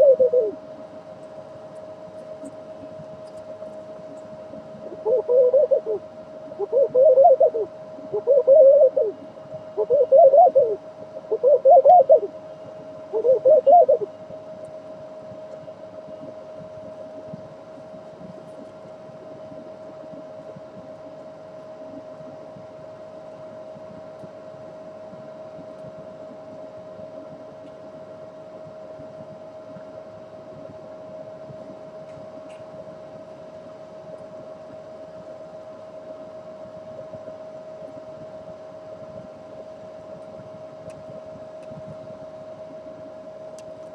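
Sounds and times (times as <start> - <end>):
dove cooing: 0.0 - 22.6
steady hum: 0.0 - 43.9.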